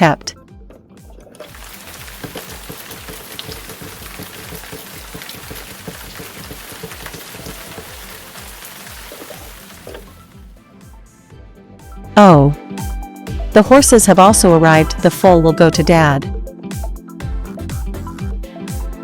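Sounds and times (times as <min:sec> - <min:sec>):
background music with low beat: 0:00.0 - 0:19.0
running water splashing: 0:01.3 - 0:10.4.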